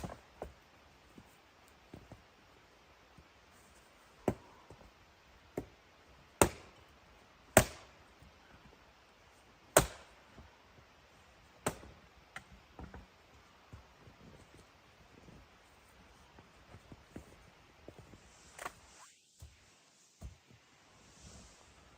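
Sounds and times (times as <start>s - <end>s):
bladed tool chopping wood: 6.4s - 6.8s, 7.5s - 7.9s, 9.8s - 10.2s.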